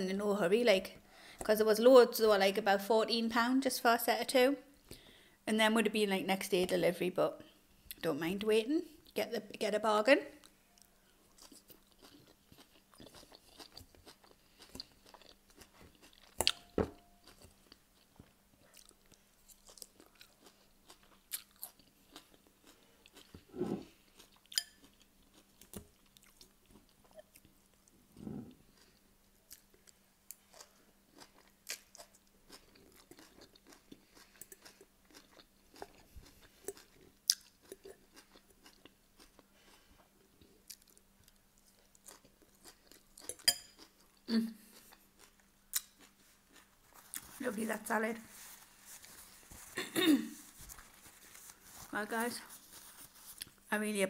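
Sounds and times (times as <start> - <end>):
crunchy chewing of salad: 10.4 - 47.4, 48.3 - 53.6.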